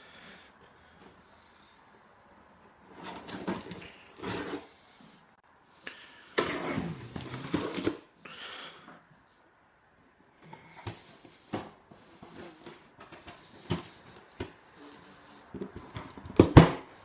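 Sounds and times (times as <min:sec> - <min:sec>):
cardboard rustling: 0:02.6 - 0:05.1, 0:06.4 - 0:08.1
scissors cutting cardboard: 0:02.9 - 0:04.8.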